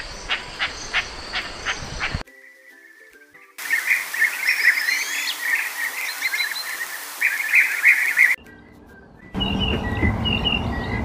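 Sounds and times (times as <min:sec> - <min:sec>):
soft background music: 0:02.2 - 0:05.6, 0:08.4 - 0:10.9.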